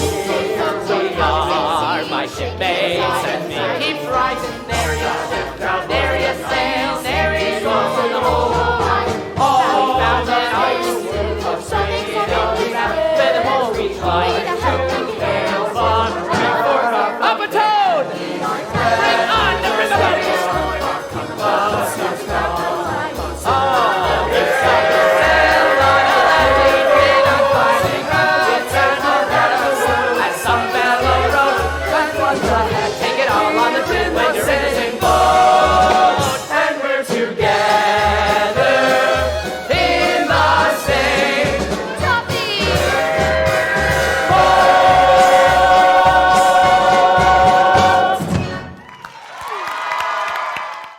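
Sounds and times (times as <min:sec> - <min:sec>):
pit band bass notes: 0:00.0 - 0:16.8, 0:18.7 - 0:36.6, 0:37.4 - 0:48.8
ensemble singing show tune: 0:00.0 - 0:48.7
audience cheering and applause: 0:24.3 - 0:30.6, 0:42.0 - 0:50.9.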